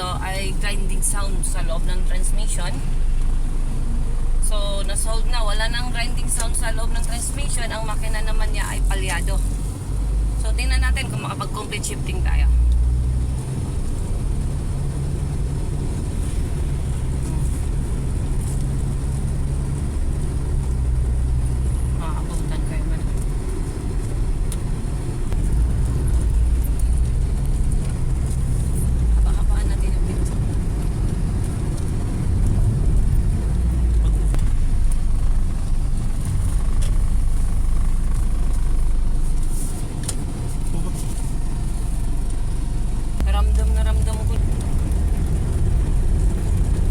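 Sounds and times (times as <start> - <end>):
car engine and road noise rumble: 0.0 - 46.9.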